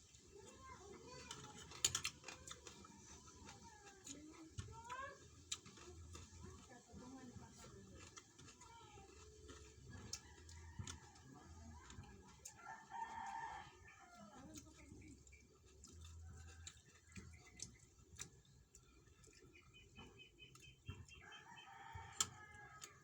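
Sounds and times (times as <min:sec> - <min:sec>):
rooster crowing: 0:12.5 - 0:14.4, 0:21.2 - 0:23.0.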